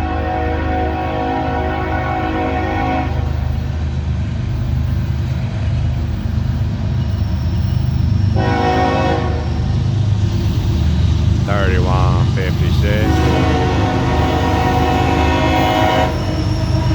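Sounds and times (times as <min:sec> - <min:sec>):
locomotive air horn: 0:00.0 - 0:03.3, 0:08.4 - 0:09.6, 0:12.5 - 0:16.9
train rumbling past: 0:00.0 - 0:16.9.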